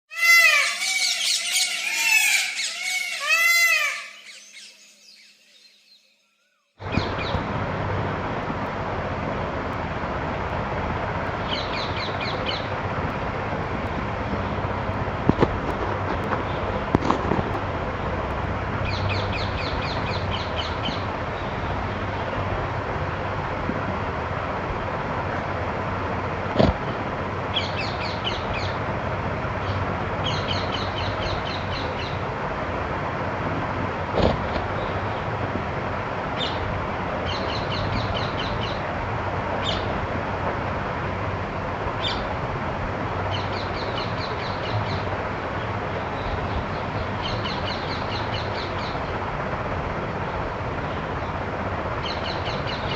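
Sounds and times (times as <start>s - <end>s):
small birds chirping: 0.1s - 7.4s
steady outdoor hiss: 0.1s - 52.9s.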